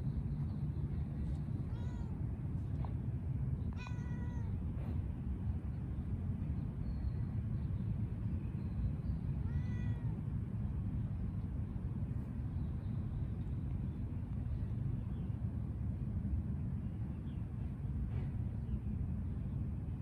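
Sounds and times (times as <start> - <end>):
steady low rumble: 0.0 - 20.0
cat meowing: 1.7 - 2.2, 3.8 - 4.6, 9.4 - 10.2.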